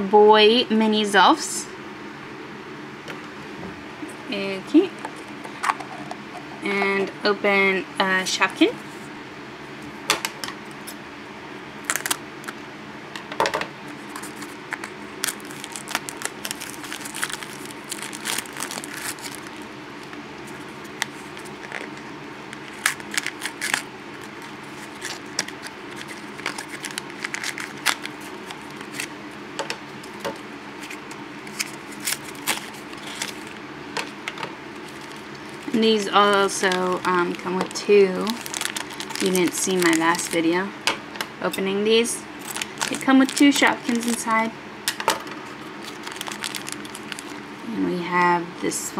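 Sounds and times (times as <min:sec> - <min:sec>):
packaging crinkling and tearing: 0:11.8 - 0:12.6, 0:13.9 - 0:29.2, 0:30.0 - 0:40.5, 0:42.4 - 0:44.4, 0:45.5 - 0:47.6.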